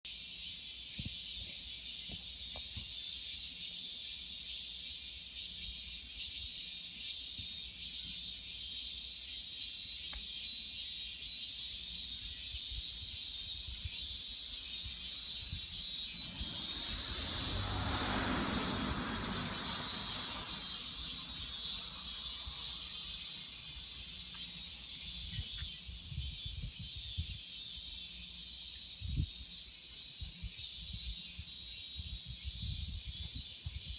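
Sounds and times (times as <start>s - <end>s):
cicadas droning: 0.0s - 33.9s
low rushing noise: 15.1s - 23.4s.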